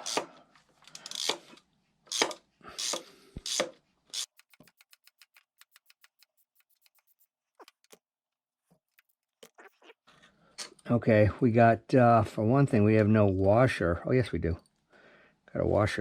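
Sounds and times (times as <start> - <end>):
ratchet wrench clicking: 0.9 - 1.4, 2.1 - 6.9.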